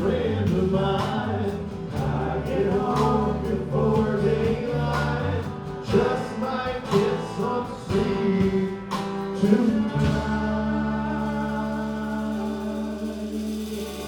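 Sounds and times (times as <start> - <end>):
held bass notes: 0.0 - 14.0
drum beat: 5.8 - 10.6
person singing: 5.9 - 14.0.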